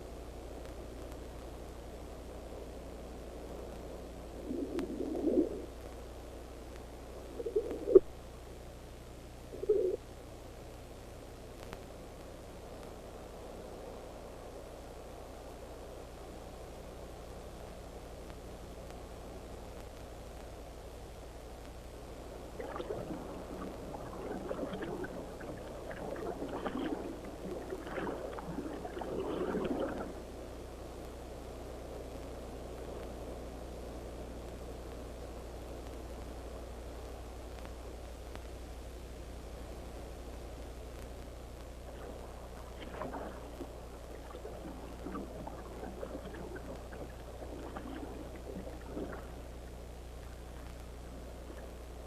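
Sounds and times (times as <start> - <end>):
steady low hum: 0.0 - 52.0
wet mud squelching and gurgling: 22.6 - 30.2, 42.8 - 49.4.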